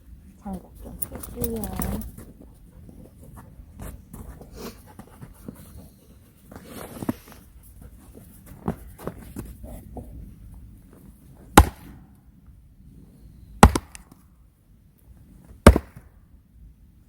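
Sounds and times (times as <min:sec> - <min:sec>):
axe chopping firewood: 0:11.5 - 0:12.0, 0:13.6 - 0:14.2, 0:15.6 - 0:16.1.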